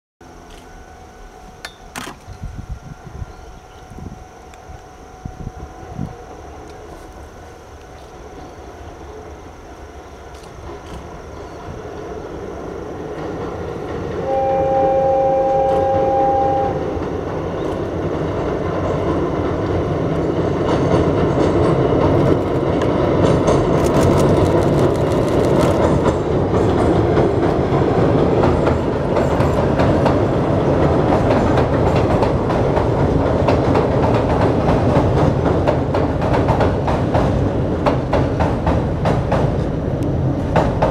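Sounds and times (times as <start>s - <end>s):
train rumbling over bridge: 0.2s - 40.9s
two-tone train horn blast: 14.1s - 17.1s
wheels clacking over rail joints: 17.0s - 40.9s.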